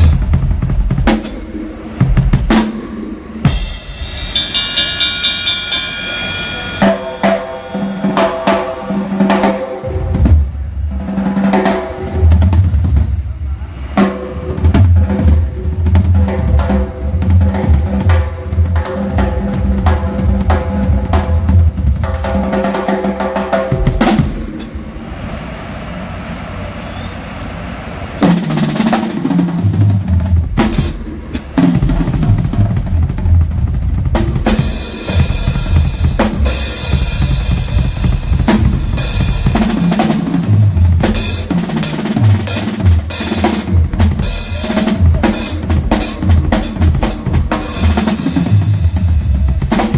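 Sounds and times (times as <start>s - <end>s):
drum kit playing: 0.0s - 25.4s, 28.2s - 49.9s
crashing cymbals: 2.6s - 9.9s.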